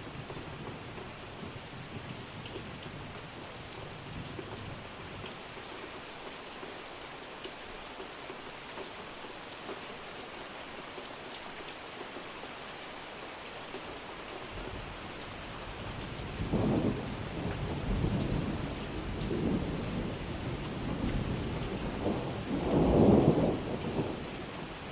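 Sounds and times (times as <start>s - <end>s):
steady rain falling: 0.0s - 24.9s
thunder rumbling: 16.4s - 24.3s.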